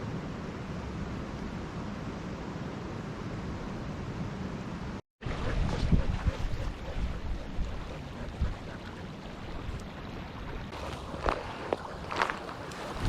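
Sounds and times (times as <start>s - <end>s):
wind buffeting microphone: 5.2s - 13.0s.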